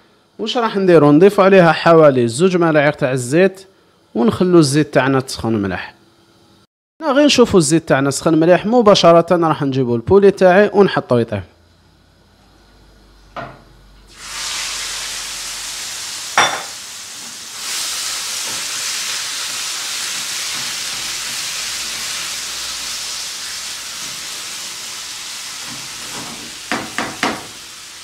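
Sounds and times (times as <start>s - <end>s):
chicken sizzling in hot oil: 14.1s - 28.0s
knocks against pan: 26.7s - 27.5s.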